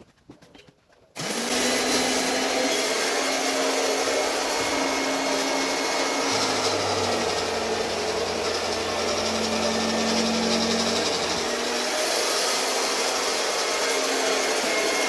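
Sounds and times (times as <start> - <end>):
cloth-cutting machine motor whine: 1.2 - 15.0
deeper hum: 6.3 - 11.8.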